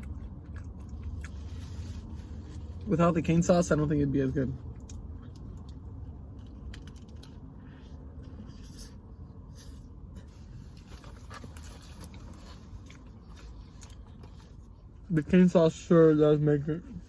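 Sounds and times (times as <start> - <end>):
chewing and mouth noises: 0.0 - 2.9, 4.6 - 15.0.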